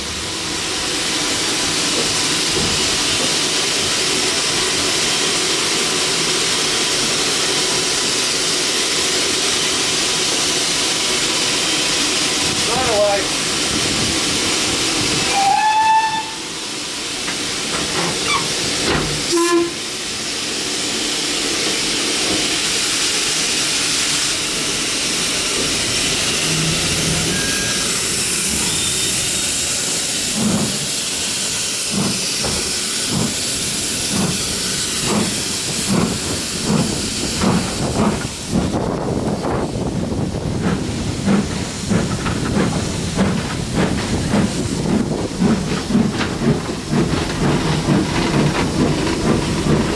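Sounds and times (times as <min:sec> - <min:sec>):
steam locomotive hissing: 0:00.0 - 0:49.9
locomotive exhaust chuffs: 0:24.9 - 0:49.9.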